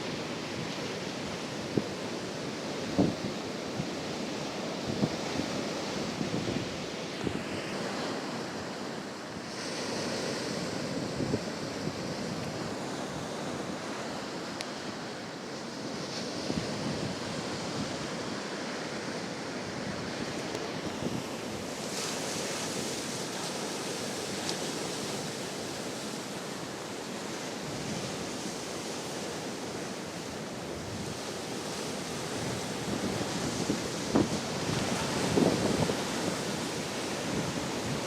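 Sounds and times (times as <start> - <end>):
wind blowing on microphone: 0.0 - 8.8, 9.5 - 14.2, 15.8 - 18.6, 29.3 - 38.0
ocean waves breaking: 0.0 - 38.0.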